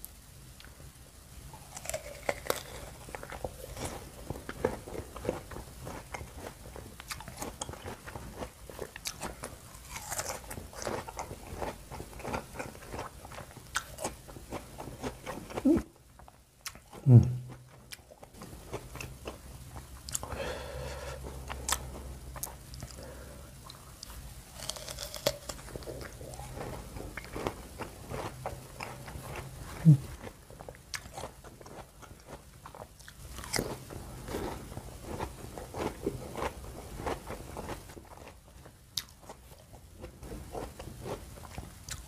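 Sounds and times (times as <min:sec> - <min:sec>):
crunching bites of fruit: 0:01.6 - 0:15.9, 0:24.0 - 0:38.4
wet chewing: 0:01.6 - 0:20.4.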